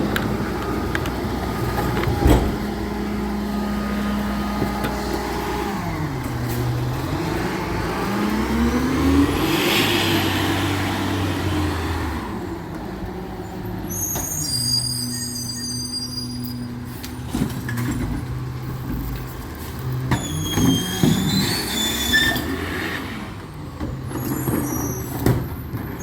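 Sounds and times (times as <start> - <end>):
diesel truck engine revving: 0.0 - 13.9, 19.4 - 24.5
thin high squeal: 13.9 - 16.7, 20.2 - 22.5.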